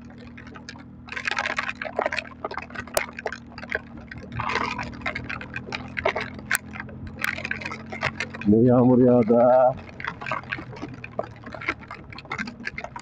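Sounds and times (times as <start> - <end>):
heavy rain spattering on microphone: 0.0 - 13.0
motorcycle engine humming: 0.0 - 13.0.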